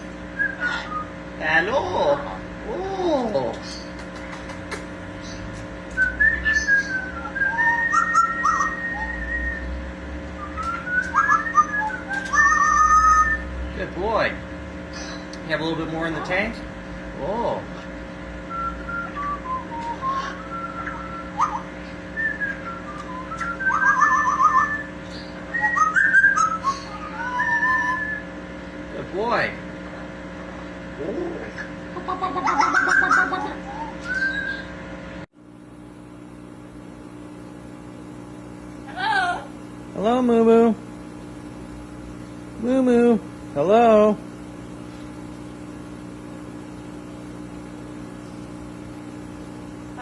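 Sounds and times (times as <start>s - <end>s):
parrot whistling a tune: 0.4s - 1.1s, 5.9s - 9.8s, 10.4s - 13.5s, 18.5s - 28.3s, 32.7s - 34.7s.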